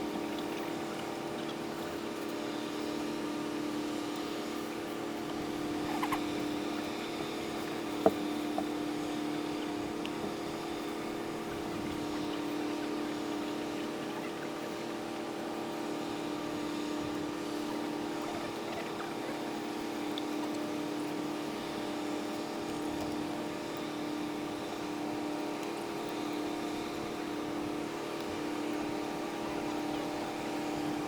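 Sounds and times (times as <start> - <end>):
boat engines droning: 0.0 - 31.0.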